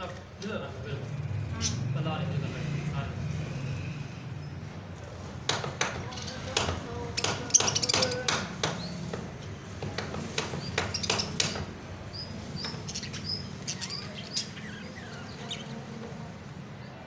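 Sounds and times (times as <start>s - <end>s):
parrots chirping: 1.0s - 2.0s, 3.3s - 17.0s
sharp taps: 5.4s - 11.8s.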